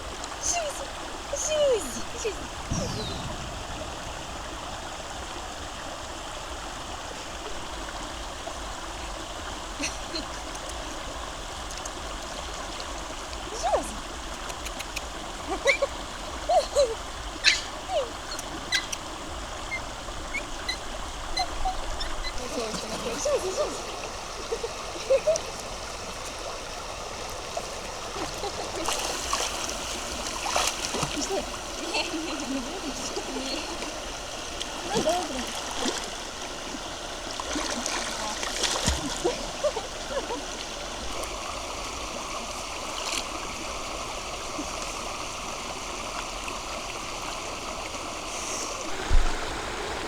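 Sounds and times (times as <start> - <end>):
river water rushing: 0.0 - 50.0
faint clicks: 14.3 - 15.2.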